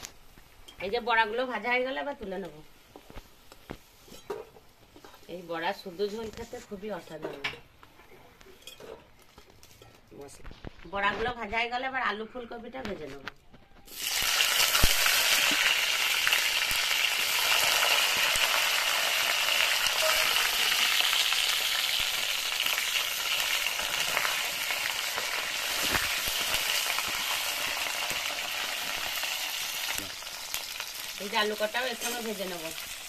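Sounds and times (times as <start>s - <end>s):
vegetables sizzling in hot oil: 13.9s - 33.0s.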